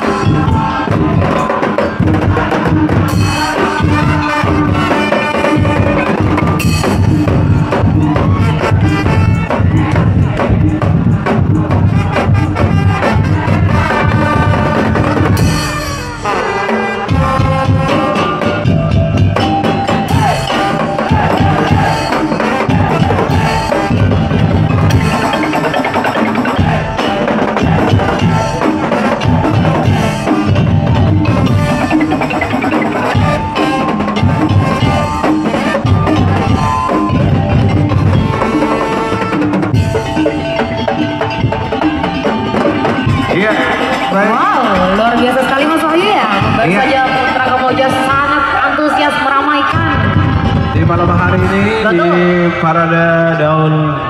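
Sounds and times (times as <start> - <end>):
heavy drumming: 0.0 - 53.4
melody line: 17.2 - 47.7.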